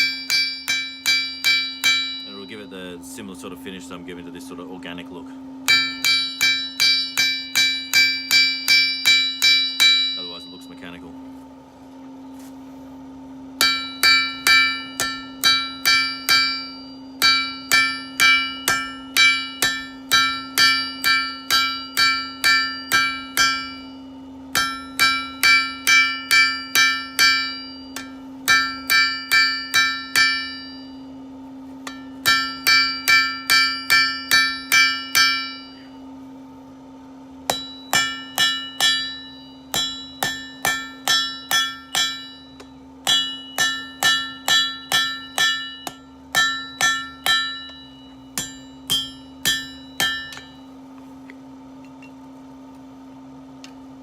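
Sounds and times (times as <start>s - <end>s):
hammer ringing on anvil: 0.0s - 3.0s, 5.6s - 11.1s, 13.6s - 31.2s, 31.8s - 36.0s, 37.5s - 50.8s
steady low hum: 0.0s - 54.0s.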